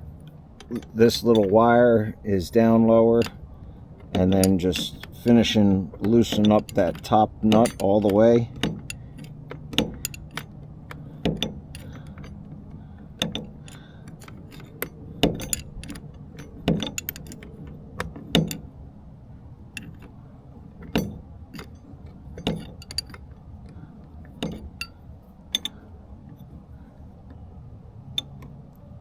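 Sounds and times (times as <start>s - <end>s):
metal wrench clicking: 4.0s - 12.4s, 13.2s - 17.7s, 19.8s - 20.1s, 22.4s - 23.2s, 24.4s - 25.8s.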